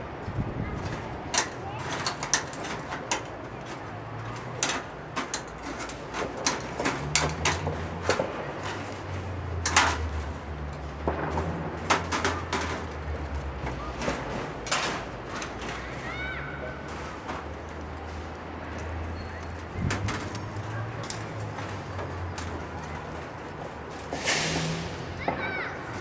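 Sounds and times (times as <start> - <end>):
knocks and clanks on sheet metal: 0.8 - 10.3, 11.0 - 16.0.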